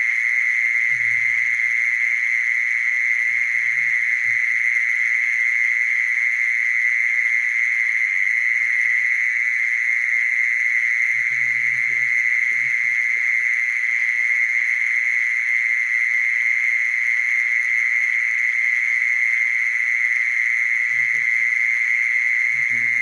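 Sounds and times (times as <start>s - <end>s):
mole cricket trilling: 0.0s - 23.0s.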